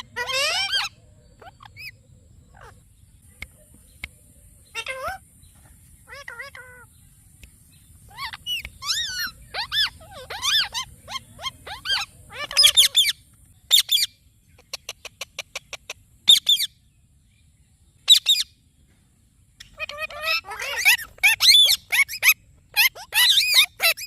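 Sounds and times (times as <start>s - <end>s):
parrot squawks: 0.0s - 2.8s, 4.7s - 5.2s, 6.1s - 6.9s, 8.1s - 14.1s, 19.7s - 24.0s
parrot chirping and whistling: 8.1s - 13.1s, 20.7s - 24.0s.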